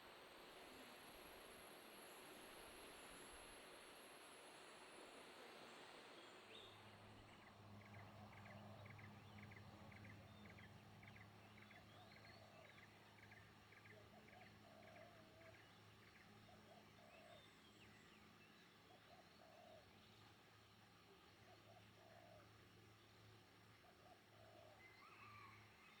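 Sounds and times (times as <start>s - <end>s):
faint repeated animal calls: 21.3s - 22.6s.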